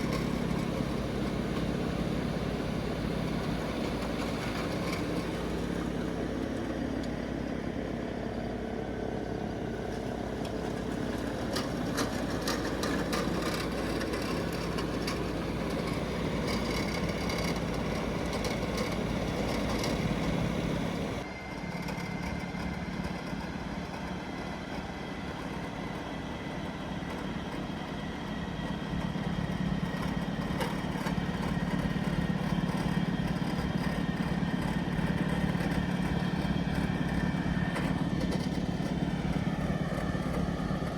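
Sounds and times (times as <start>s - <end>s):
tractor engine under load: 0.0s - 40.9s.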